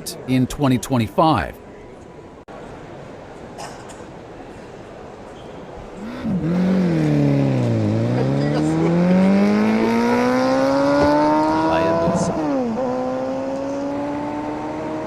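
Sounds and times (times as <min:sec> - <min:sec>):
vehicle engine revving: 0:06.0 - 0:15.0.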